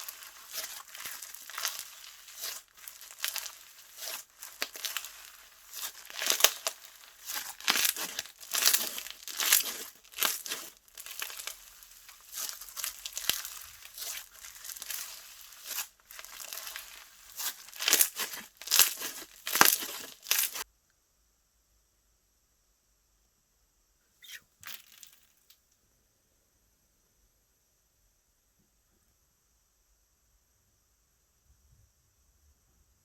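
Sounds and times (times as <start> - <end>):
slime crackling and crinkling: 0.0 - 20.6.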